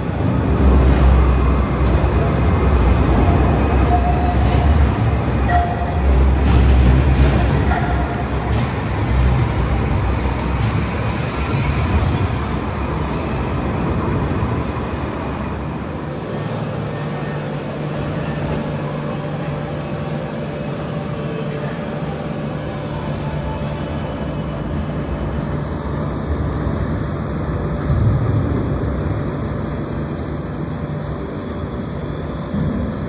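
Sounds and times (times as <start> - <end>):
tram clicks: 0.0 - 15.7, 24.8 - 33.0
tram running by: 0.0 - 33.0.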